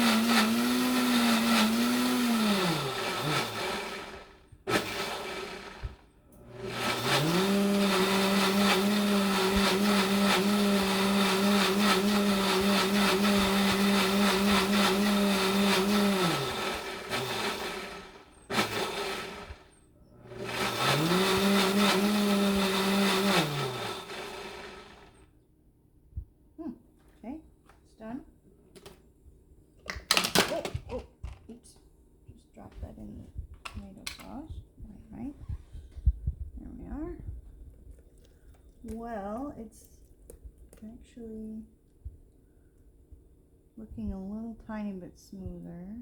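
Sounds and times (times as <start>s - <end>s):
blender motor blending: 0.0s - 25.2s.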